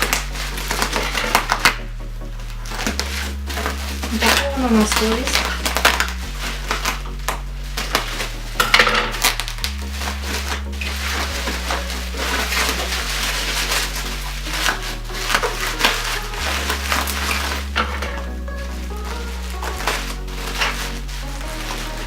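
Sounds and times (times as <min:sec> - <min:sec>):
background music with bass line: 0:00.0 - 0:22.0
packaging crackling and rustling: 0:00.0 - 0:22.0.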